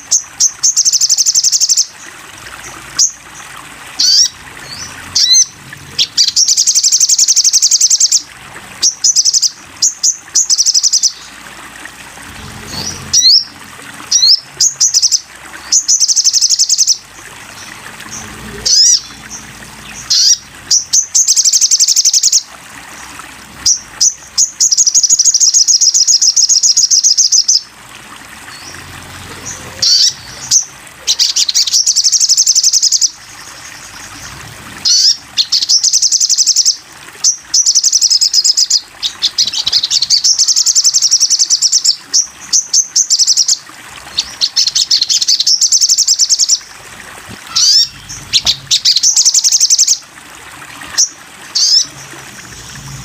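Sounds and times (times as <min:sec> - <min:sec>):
songbird trilling: 0:47.5 - 0:50.0.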